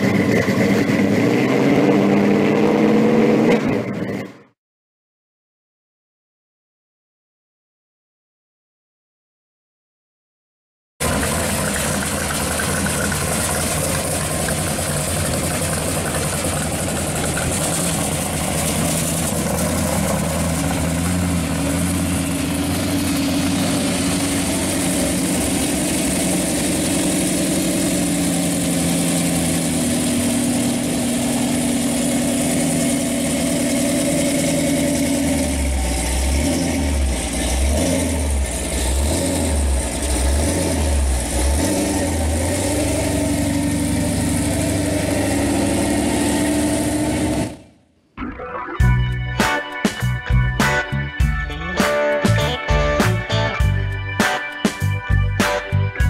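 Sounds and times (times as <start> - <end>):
loud car engine idling: 0.0 - 4.3, 11.0 - 47.7.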